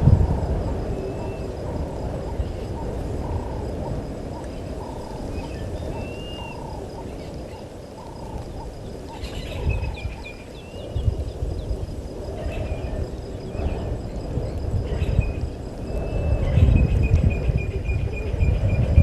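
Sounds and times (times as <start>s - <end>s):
frogs calling: 0.2s - 18.9s.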